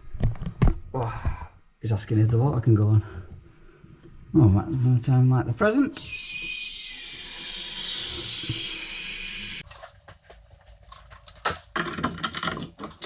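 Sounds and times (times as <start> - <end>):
water hissing through pipes: 6.0 - 9.6.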